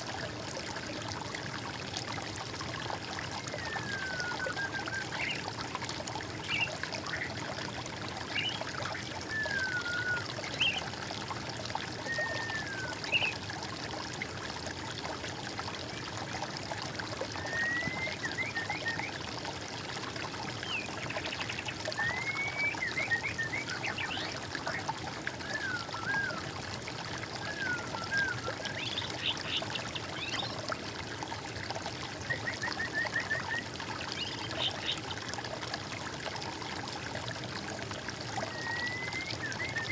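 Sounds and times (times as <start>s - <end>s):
water trickling: 0.0s - 39.9s
songbirds singing: 6.3s - 7.5s, 8.2s - 10.9s, 12.0s - 13.4s, 20.6s - 26.5s, 27.4s - 30.7s, 32.2s - 35.1s.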